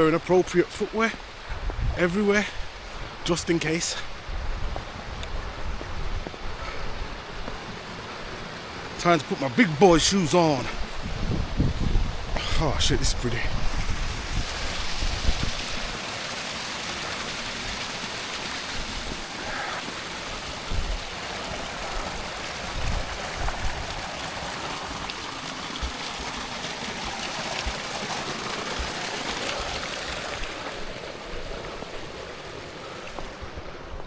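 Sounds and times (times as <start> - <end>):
stream rushing over rocks: 0.0 - 34.0.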